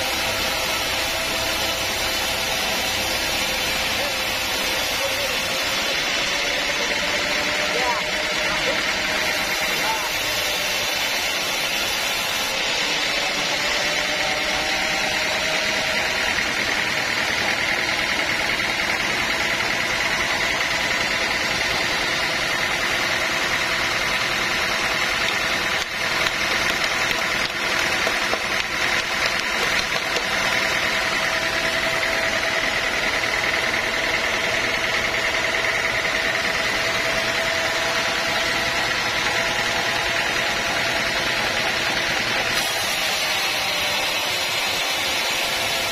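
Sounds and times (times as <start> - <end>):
sawmill machinery whining: 0.0 - 45.9.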